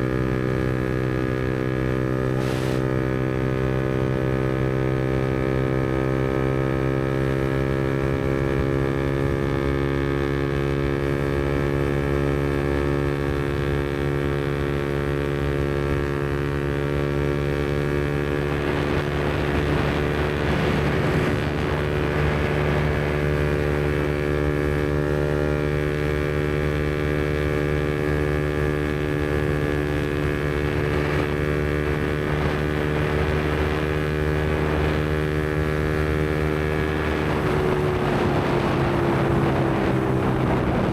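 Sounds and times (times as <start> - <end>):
motorcycle engine cruising: 0.0 - 40.9
rushing noise: 2.3 - 3.1.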